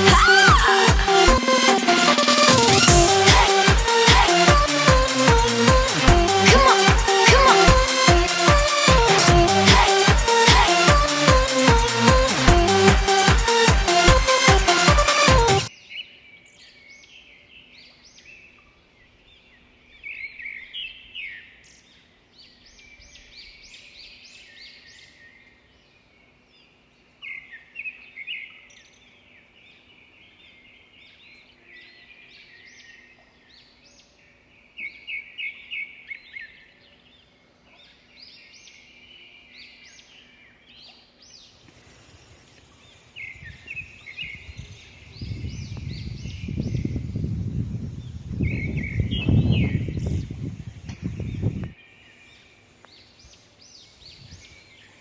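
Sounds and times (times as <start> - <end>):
birds chirping: 41.4 - 47.3, 48.0 - 55.0.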